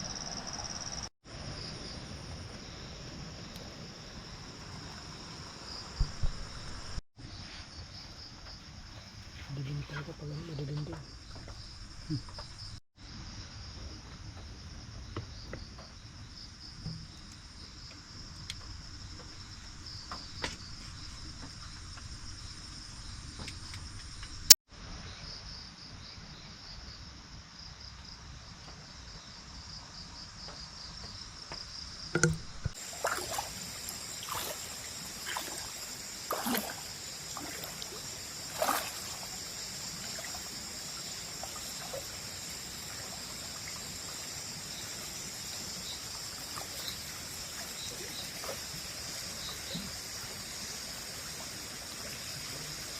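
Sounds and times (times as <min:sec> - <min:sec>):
trickling stream water: 0:00.0 - 0:07.0, 0:07.9 - 0:12.8, 0:14.3 - 0:24.6, 0:31.1 - 0:52.9
night insects chirring: 0:00.0 - 0:52.9
splashes and knocks in water: 0:32.1 - 0:42.5, 0:46.2 - 0:48.8.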